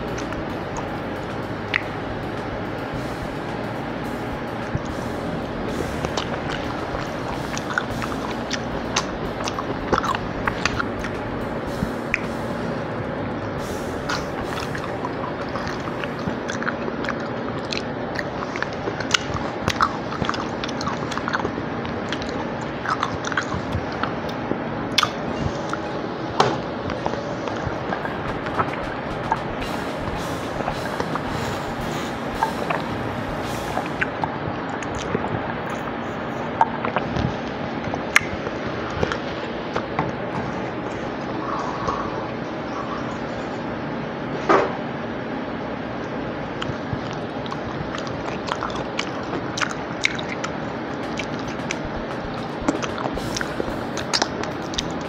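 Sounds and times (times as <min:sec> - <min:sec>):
background hiss: 0:00.0 - 0:21.7, 0:23.5 - 0:37.5, 0:47.3 - 0:55.0
close chewing with mouth clicks: 0:14.1 - 0:24.4, 0:34.8 - 0:35.8, 0:46.6 - 0:55.0.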